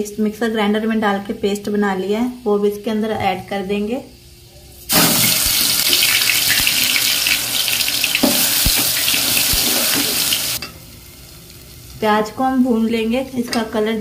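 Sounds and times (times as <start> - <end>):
paste sizzling in hot oil: 4.9 - 11.2.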